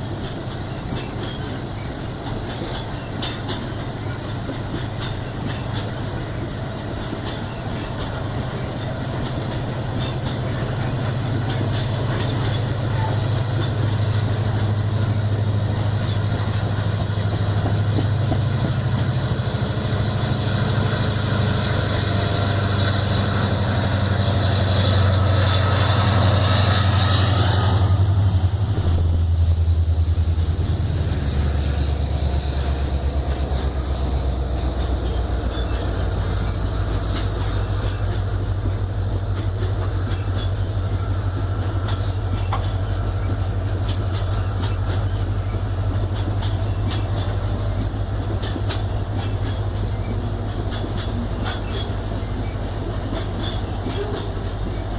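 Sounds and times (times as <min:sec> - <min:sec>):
wheels clicking over rail joints: 0:00.0 - 0:19.3, 0:36.9 - 0:54.9
diesel locomotive engine: 0:00.0 - 0:54.9
train cars rumbling: 0:00.0 - 0:54.9.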